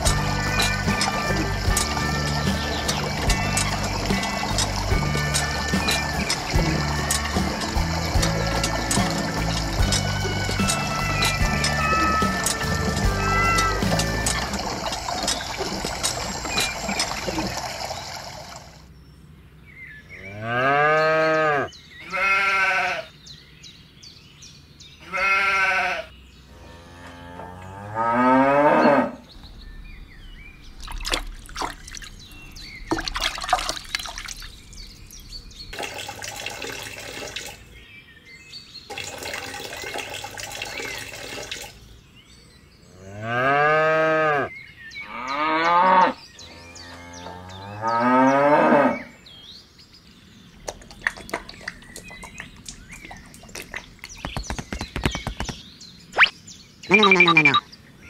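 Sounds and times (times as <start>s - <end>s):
sheep bleating: 22.0s - 23.1s, 25.0s - 26.1s
cattle mooing: 25.1s - 29.2s
noisy unpitched sound: 56.2s - 57.6s.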